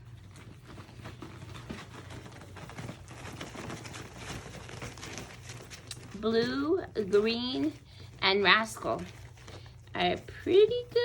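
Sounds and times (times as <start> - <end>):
low steady hum: 0.0 - 11.0
puppies clicking and scratching: 0.0 - 11.0.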